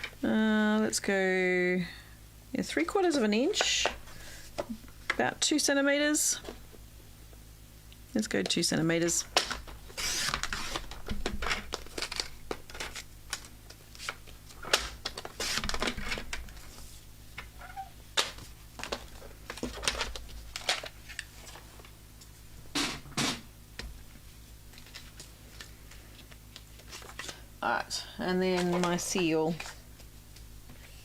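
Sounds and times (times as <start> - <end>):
paper rustling: 24.7 - 27.4.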